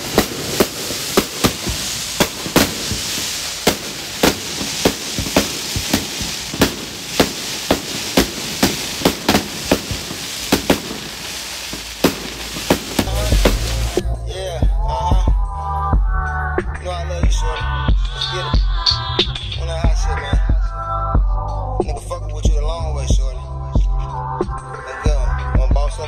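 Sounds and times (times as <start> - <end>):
steady hiss: 0.0 - 14.0
firecrackers banging: 0.0 - 14.1.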